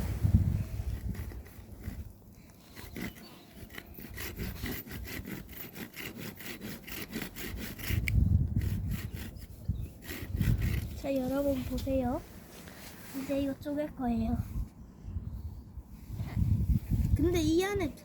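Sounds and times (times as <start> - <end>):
hand saw cutting wood: 0.8 - 11.6.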